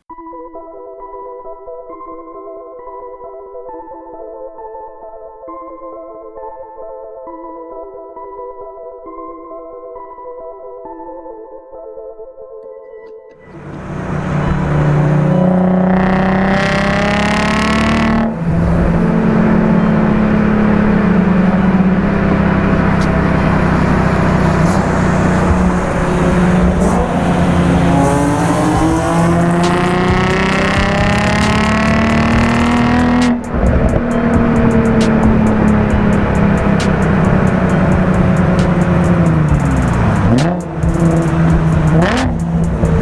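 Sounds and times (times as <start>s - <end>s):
car engine accelerating hard: 13.5s - 43.0s.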